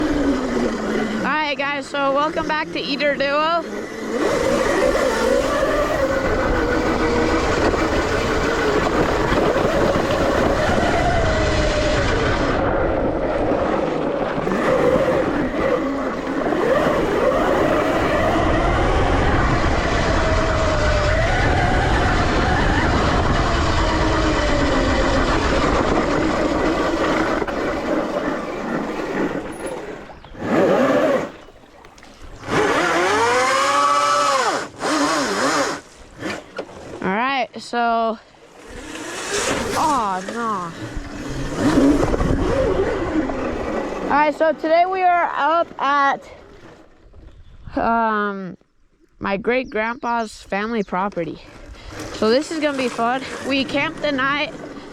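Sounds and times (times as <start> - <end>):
electric motor whine: 0.0 - 36.9
wind and tyre rumble: 0.0 - 54.9.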